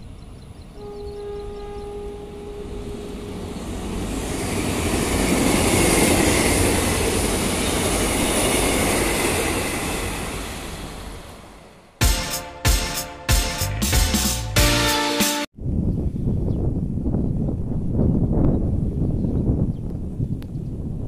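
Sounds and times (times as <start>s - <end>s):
train wheels rolling on rails: 3.2s - 11.8s.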